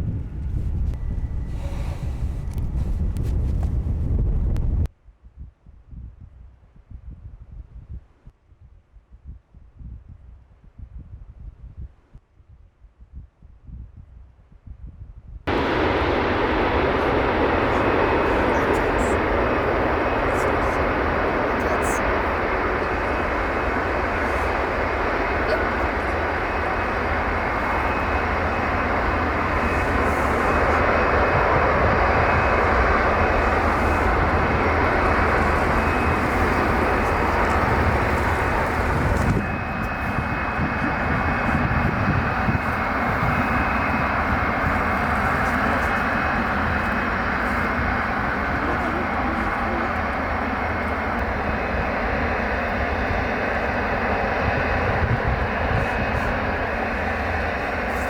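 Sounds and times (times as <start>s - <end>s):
jet engines running: 15.5s - 58.0s.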